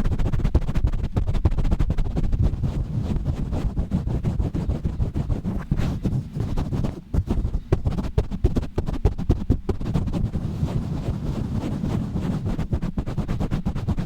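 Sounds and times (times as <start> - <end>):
rubbing and scratching on microphone: 0.0 - 14.0.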